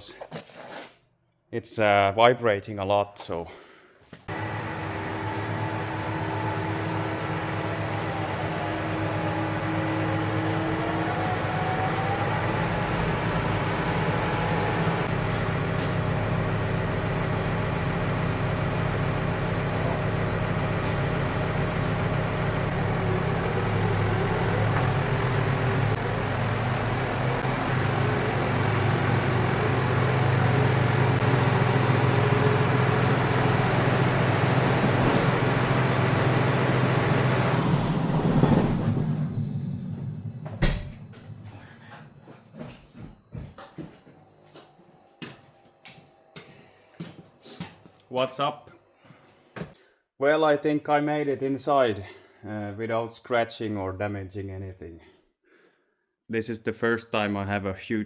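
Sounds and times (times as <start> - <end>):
tractor diesel engine running: 4.3 - 43.0.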